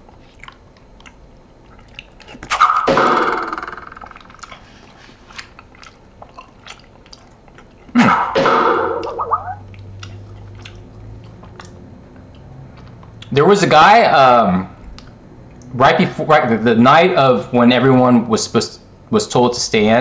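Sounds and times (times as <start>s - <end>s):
wet chewing clicks and smacks: 0.0s - 2.5s, 4.1s - 4.6s, 5.3s - 7.9s, 9.0s - 13.4s
voice-like mouth sounds: 9.0s - 10.2s.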